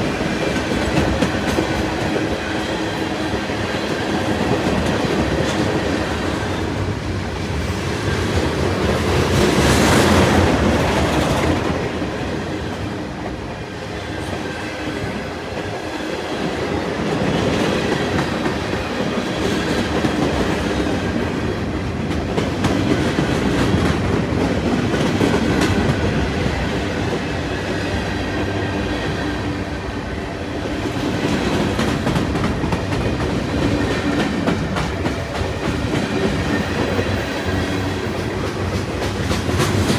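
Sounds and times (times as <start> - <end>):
train wheels clicking over rail joints: 30.7 - 39.9.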